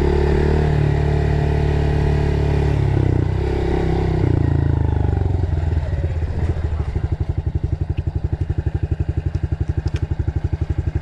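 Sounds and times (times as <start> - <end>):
dirt bike engine idling: 4.3 - 11.0.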